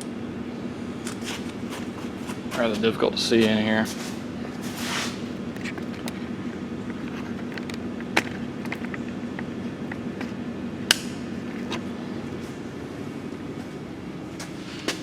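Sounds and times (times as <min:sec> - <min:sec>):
steady low hum: 0:00.0 - 0:15.0
plastic snapping: 0:05.4 - 0:11.9.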